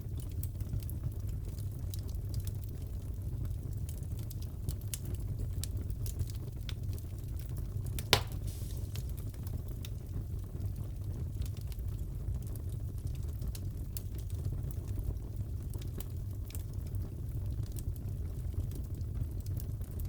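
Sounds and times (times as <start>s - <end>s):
fire crackling in a fireplace: 0.0s - 20.0s
loud fire pop: 8.0s - 9.4s.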